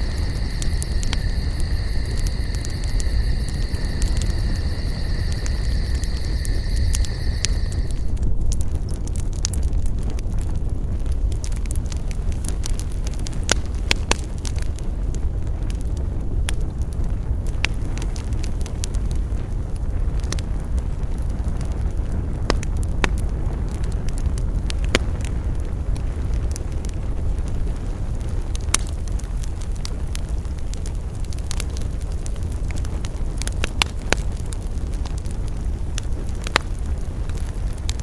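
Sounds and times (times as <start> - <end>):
low rumble: 0.0 - 8.7
campfire crackling: 0.0 - 38.0.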